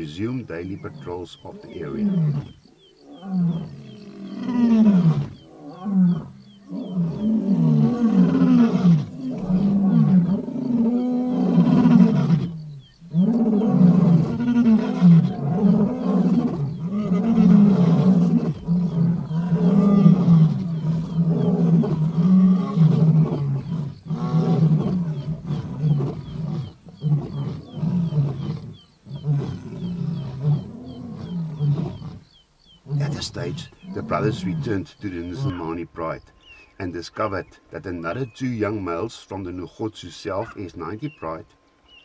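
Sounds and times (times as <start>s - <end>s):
lion roaring: 0.7s - 35.6s.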